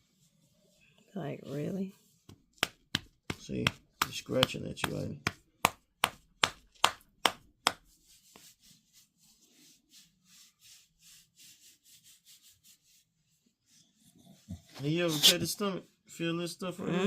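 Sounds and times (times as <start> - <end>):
scratching against a dog: 14.0 - 15.7.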